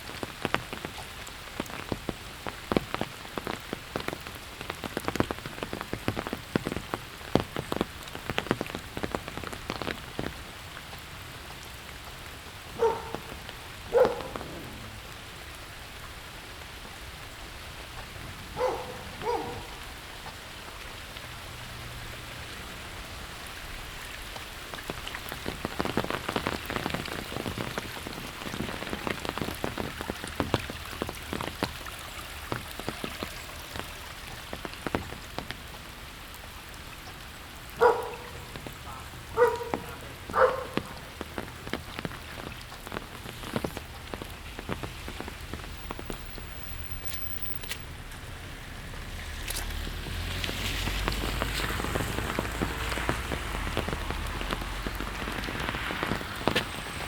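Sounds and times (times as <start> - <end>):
steady rain patter: 0.0 - 57.0
dog barking: 12.8 - 14.7, 18.5 - 19.9, 37.8 - 41.0.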